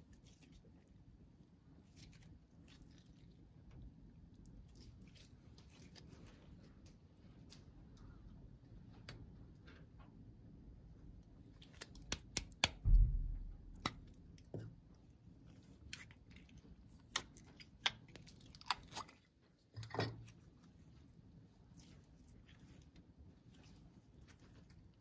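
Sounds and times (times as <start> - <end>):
slime squelching: 0.0 - 7.2, 11.4 - 25.0
slime clicking and popping: 11.6 - 12.9
thump: 12.8 - 13.8.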